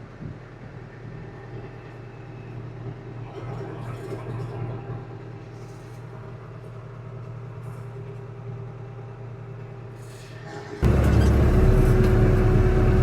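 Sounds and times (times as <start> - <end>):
tractor engine droning: 10.5 - 13.0.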